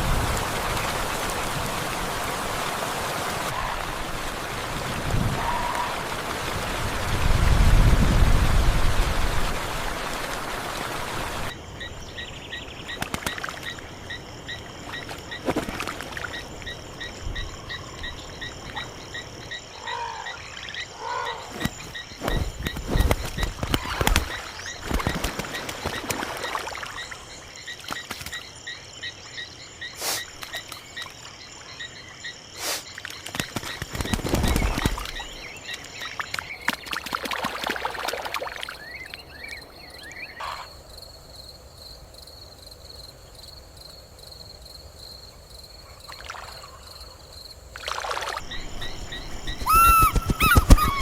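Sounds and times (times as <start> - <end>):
high-pitched chirping chorus: 48.4 - 51.0
rustling burst: 48.4 - 51.0
short sharp noises: 48.5 - 51.0.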